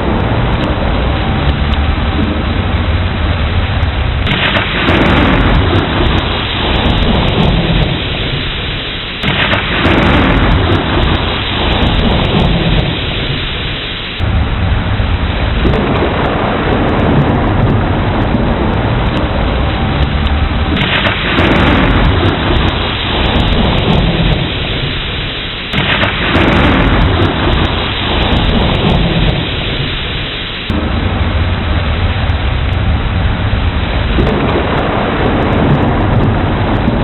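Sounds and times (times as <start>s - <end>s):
heavy rain: 0.0s - 37.0s
rolling thunder: 0.0s - 37.0s.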